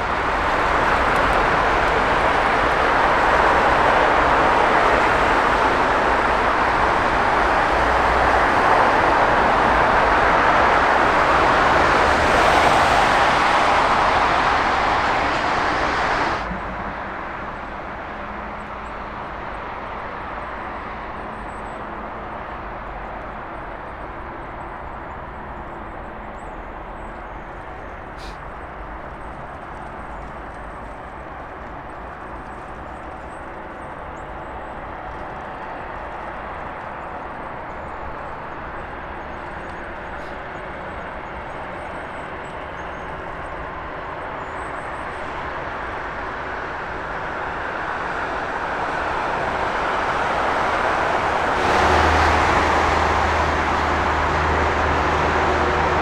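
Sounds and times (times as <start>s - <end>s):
jet airliner engine noise: 0.0s - 26.3s, 26.9s - 56.0s
aircraft and airport noise: 0.0s - 56.0s.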